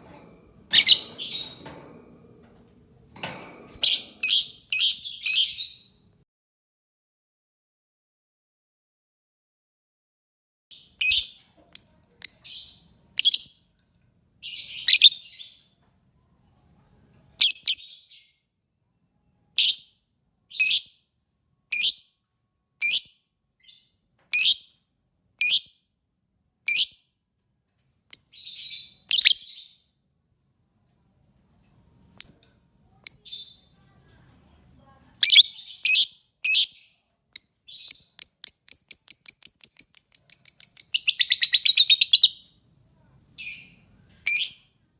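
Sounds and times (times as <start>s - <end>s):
lovebird chirping: 0.7s - 1.6s, 3.8s - 5.9s, 11.0s - 13.6s, 35.2s - 42.5s.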